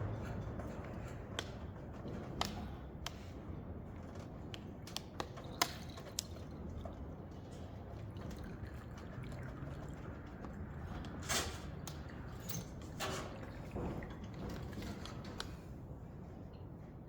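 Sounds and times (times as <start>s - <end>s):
light clicks and taps: 14.5s - 15.6s.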